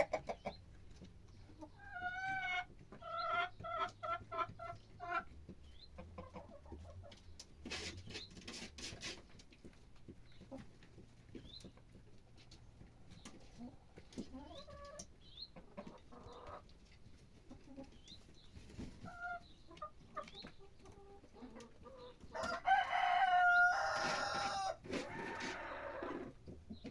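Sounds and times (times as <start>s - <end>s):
rooster crowing: 22.4s - 26.0s.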